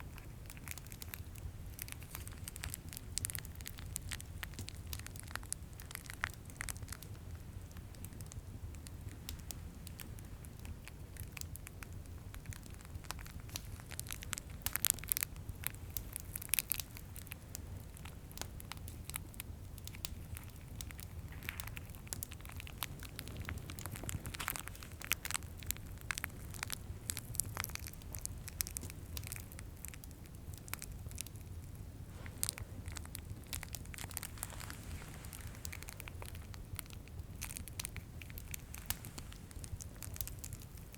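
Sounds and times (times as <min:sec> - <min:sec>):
fireplace crackling and rumbling: 0:00.0 - 0:40.9
plastic wrappers crinkling: 0:21.4 - 0:29.4, 0:32.2 - 0:40.9.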